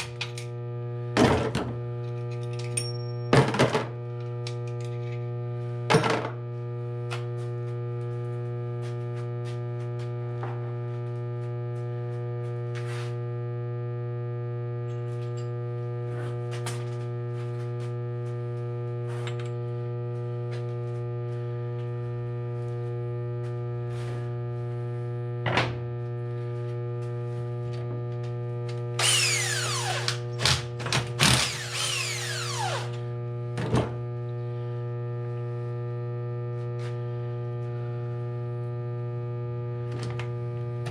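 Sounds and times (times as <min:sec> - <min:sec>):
steady electrical hum: 0:00.0 - 0:40.9.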